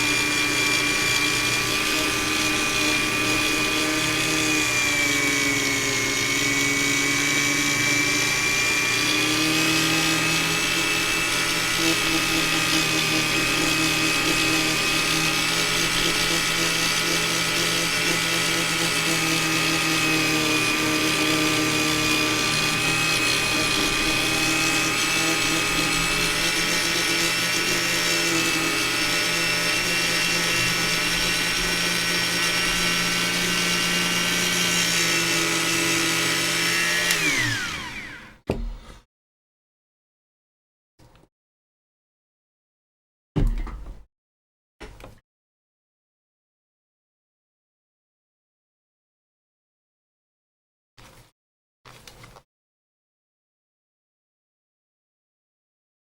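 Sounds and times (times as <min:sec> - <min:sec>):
power tool motor spinning: 0:00.0 - 0:39.0.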